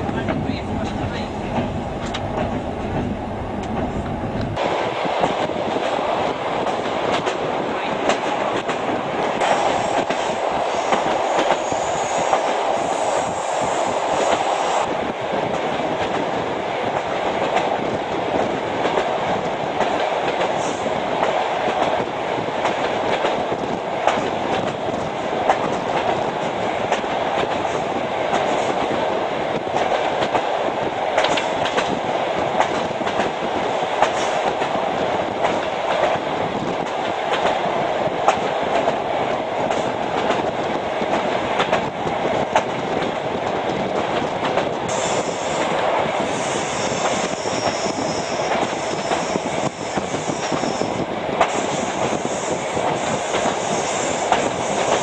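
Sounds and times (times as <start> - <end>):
rumble of wheels on rail: 0.0 - 55.0.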